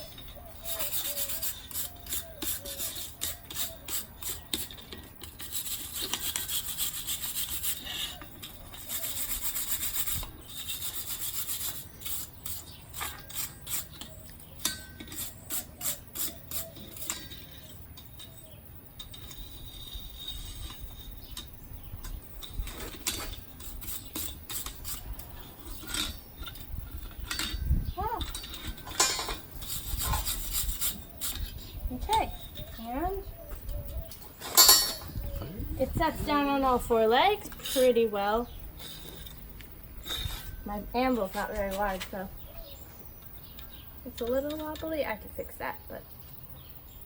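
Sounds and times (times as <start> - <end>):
brush scrubbing on metal: 0.0 - 17.6, 22.5 - 26.2, 28.3 - 31.5.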